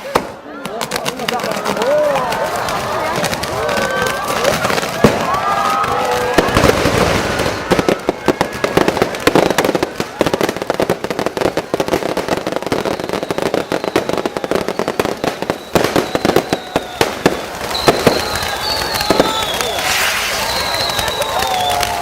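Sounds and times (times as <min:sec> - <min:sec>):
firework crackling: 0:00.0 - 0:22.0
firework whistle: 0:12.3 - 0:22.0.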